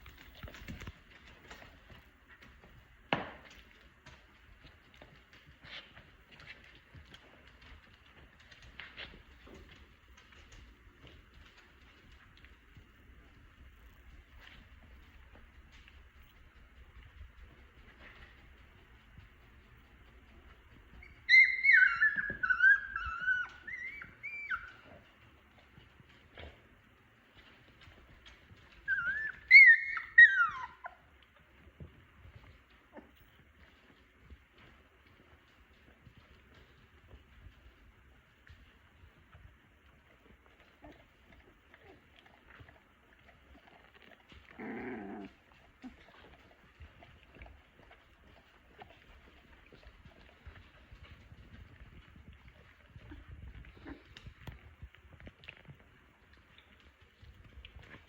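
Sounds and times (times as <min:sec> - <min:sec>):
puppies scuffling and tapping: 0:00.0 - 0:58.0
puppies whining and squealing: 0:20.6 - 0:25.6, 0:28.0 - 0:31.3, 0:40.1 - 0:51.8, 0:52.5 - 0:54.6.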